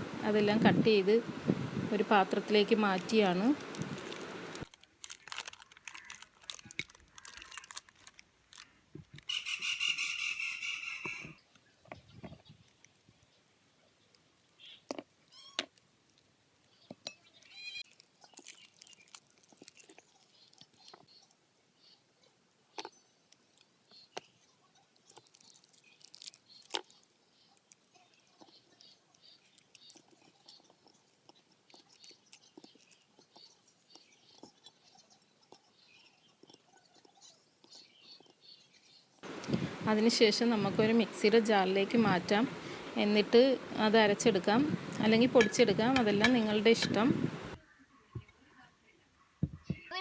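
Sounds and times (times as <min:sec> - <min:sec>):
faint rustling: 0:39.2 - 0:47.6.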